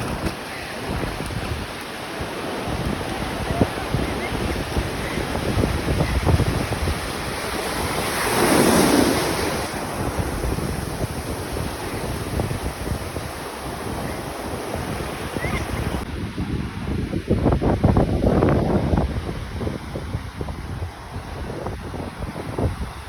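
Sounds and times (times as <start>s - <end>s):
surf rushing: 0.0s - 16.1s
wave washing in: 0.0s - 16.1s
wind buffeting microphone: 0.0s - 23.0s.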